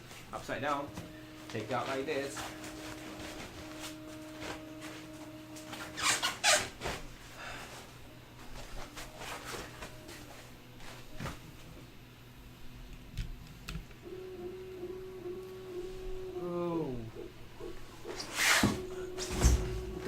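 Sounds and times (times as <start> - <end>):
packaging rubbing and squeaking: 5.7 - 7.0.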